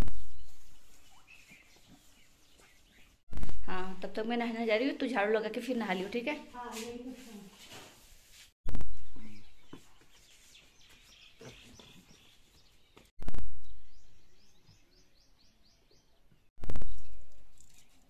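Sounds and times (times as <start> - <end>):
bird chirping: 0.0 - 3.9, 8.8 - 18.0.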